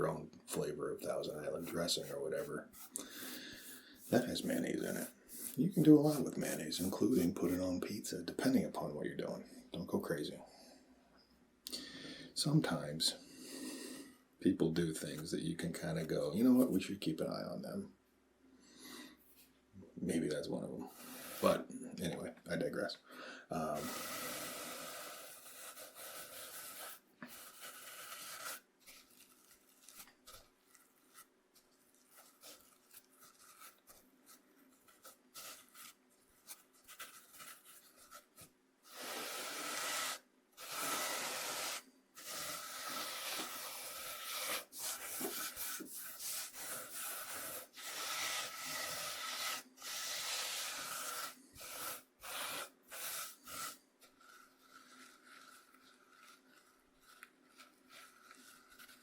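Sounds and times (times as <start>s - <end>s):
cornmeal scraped across cutting board: 1.0s - 7.8s, 20.8s - 21.7s, 23.7s - 31.3s, 32.0s - 59.0s.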